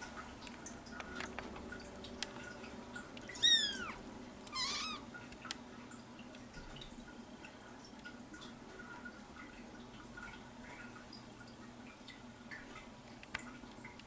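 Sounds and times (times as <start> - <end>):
kitten mewing: 3.3 - 5.1.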